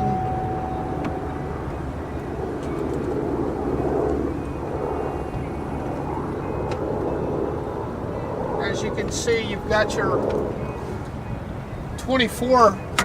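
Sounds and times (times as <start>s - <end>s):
liftgate electric motor: 0.0s - 2.3s
steady tone: 0.0s - 3.5s
low outdoor rumble: 0.0s - 6.9s.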